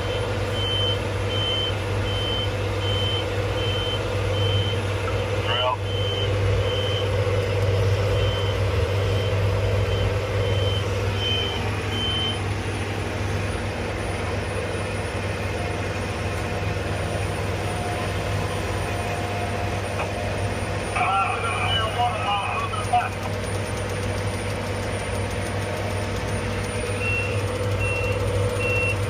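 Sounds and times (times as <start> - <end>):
high-pitched warning beeper: 0.0 - 7.2, 8.1 - 12.4
heavy machine engine running: 0.0 - 29.0.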